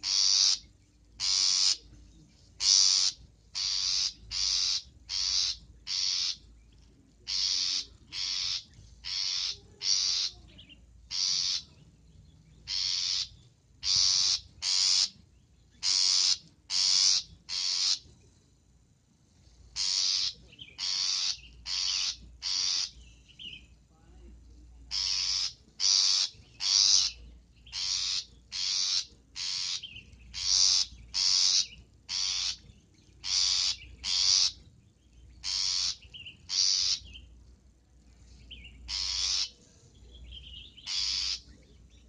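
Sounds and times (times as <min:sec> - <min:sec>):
shrike giving harsh rasping calls: 0:00.0 - 0:01.8, 0:02.6 - 0:06.5, 0:07.3 - 0:10.4, 0:11.1 - 0:11.7, 0:12.6 - 0:15.2, 0:15.8 - 0:18.1, 0:19.8 - 0:23.0, 0:24.9 - 0:34.6, 0:35.4 - 0:37.2, 0:38.9 - 0:39.6, 0:40.7 - 0:41.6.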